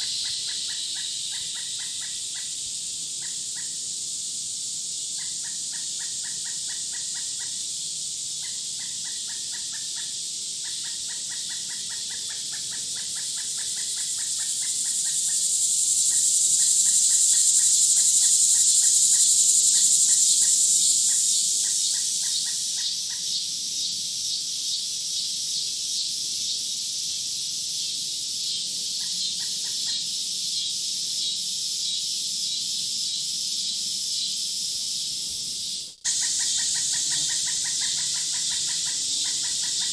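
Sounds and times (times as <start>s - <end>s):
high insect drone: 0.0s - 39.9s
rapid chirping pulses: 4.9s - 24.1s, 28.9s - 39.9s.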